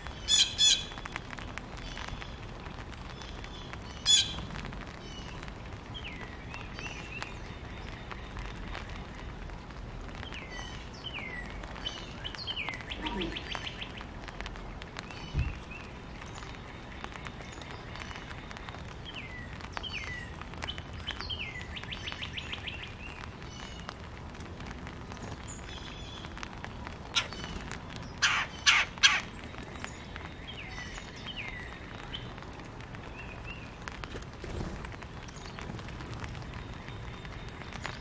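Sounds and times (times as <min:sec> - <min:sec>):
harsh bird calls: 0:10.4 - 0:14.1, 0:27.1 - 0:32.4.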